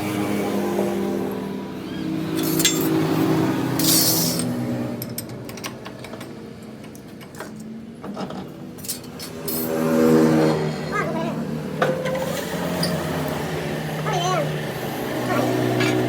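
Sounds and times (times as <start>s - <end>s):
metal tools clinking: 2.3s - 3.0s, 3.8s - 4.5s, 11.8s - 14.5s, 15.2s - 16.0s.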